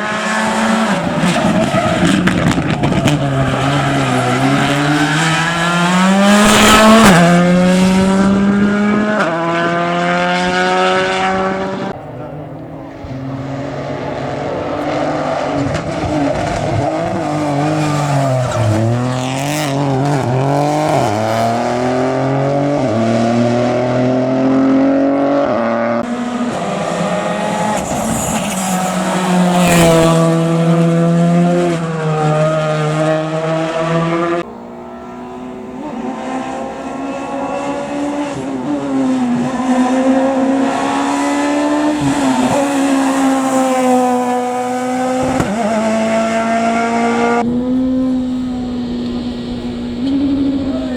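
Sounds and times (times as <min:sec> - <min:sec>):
rally car engines revving: 0:00.0 - 0:50.9.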